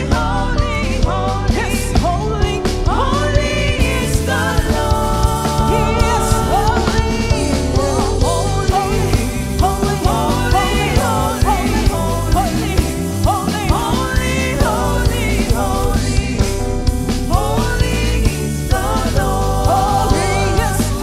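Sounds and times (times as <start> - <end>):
worship band playing: 0.0 - 21.0
person singing ornamented lines: 4.5 - 12.7.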